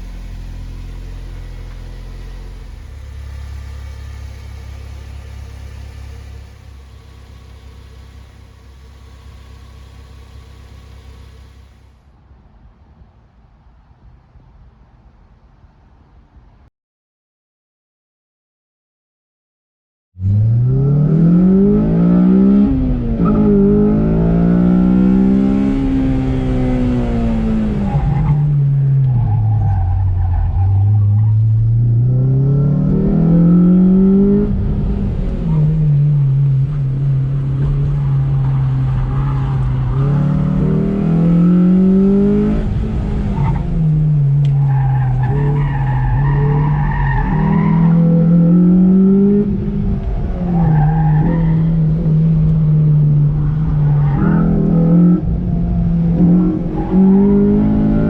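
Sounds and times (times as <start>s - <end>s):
car engine revving: 0.0s - 12.0s, 20.2s - 58.0s
tires squealing: 27.7s - 31.7s, 37.6s - 42.5s, 44.2s - 49.0s, 50.0s - 52.3s, 52.9s - 55.2s, 56.1s - 58.0s.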